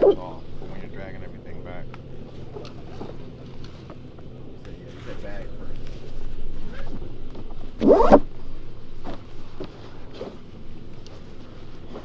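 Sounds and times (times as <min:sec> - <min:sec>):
zipper pulled open: 0:07.8 - 0:08.3.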